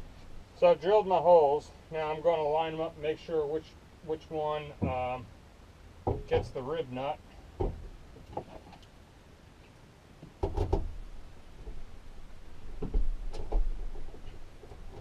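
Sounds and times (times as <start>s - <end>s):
thumps: 4.8s - 5.3s, 6.0s - 6.7s, 7.6s - 8.8s, 10.2s - 11.0s, 12.7s - 15.0s
loud knock with clatter: 10.4s - 10.9s.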